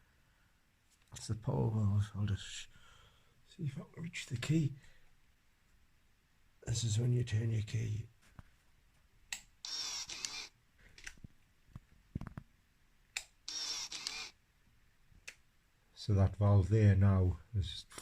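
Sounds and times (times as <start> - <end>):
servo motor whirring: 9.7 - 10.5, 13.5 - 14.3.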